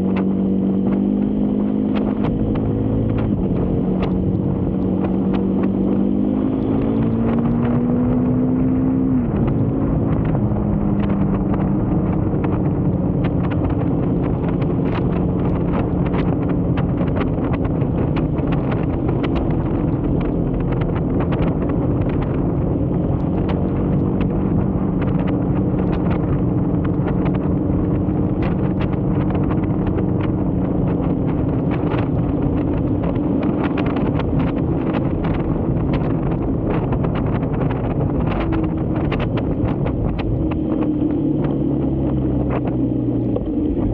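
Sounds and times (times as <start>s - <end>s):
motorcycle engine revving: 0.0s - 43.9s
wind buffeting microphone: 0.0s - 43.9s.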